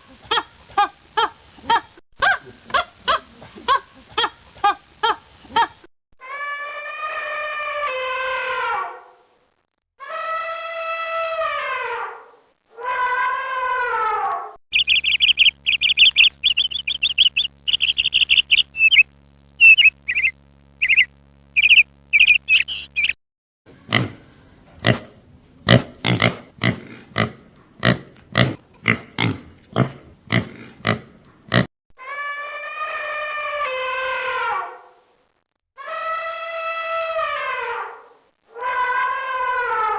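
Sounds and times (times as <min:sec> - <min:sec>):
high-pitched chirping: 0:14.7 - 0:23.2
low hum: 0:14.7 - 0:23.2.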